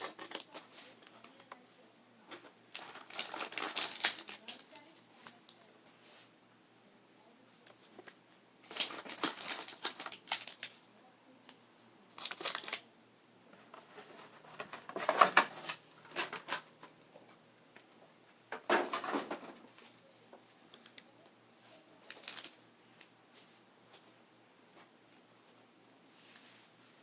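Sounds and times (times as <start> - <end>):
card packaging crinkling and rustling: 0.0 - 1.6, 2.3 - 5.7, 7.7 - 10.8, 12.1 - 12.9, 13.6 - 17.0, 18.6 - 22.7.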